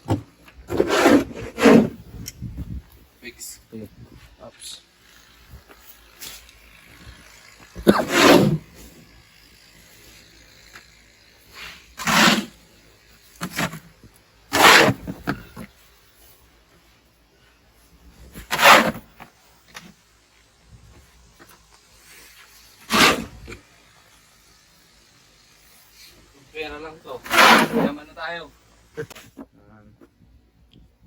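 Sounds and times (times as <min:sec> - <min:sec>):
snow shovel scraping snow: 0:00.7 - 0:02.0, 0:05.0 - 0:13.9, 0:14.5 - 0:16.4, 0:18.2 - 0:19.3, 0:22.0 - 0:24.3, 0:25.5 - 0:28.3.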